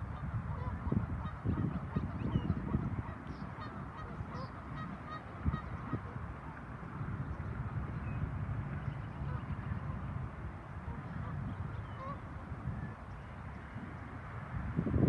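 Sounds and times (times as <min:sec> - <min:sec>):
waterfowl calling: 0:00.0 - 0:06.6, 0:10.8 - 0:12.3
wind rumbling on microphone: 0:00.0 - 0:15.0.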